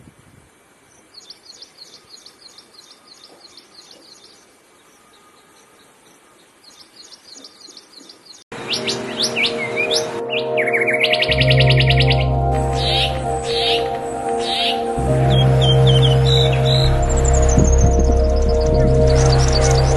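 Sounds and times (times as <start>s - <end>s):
faint steady hiss: 0.0s - 9.2s
bird chirping: 0.8s - 19.9s
sweeping bird calls: 0.8s - 19.9s
steady held tones: 8.5s - 19.9s.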